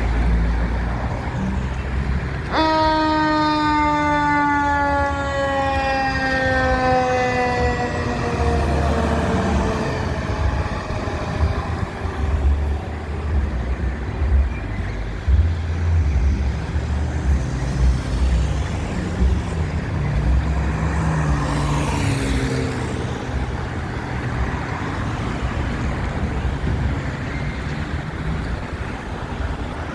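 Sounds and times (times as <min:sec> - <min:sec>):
street traffic noise: 0:00.0 - 0:29.9
fire engine siren: 0:02.4 - 0:12.6.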